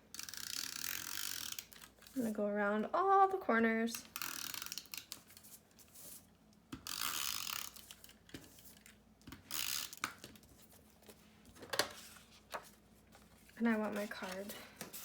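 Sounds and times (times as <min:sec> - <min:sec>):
paper being handled: 0:10.3 - 0:15.0.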